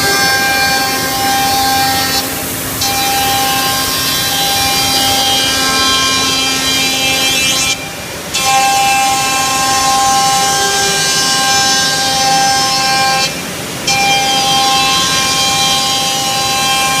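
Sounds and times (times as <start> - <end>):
hiss of cutting: 0.0 - 8.1
cnc router spindle whine: 0.0 - 17.0.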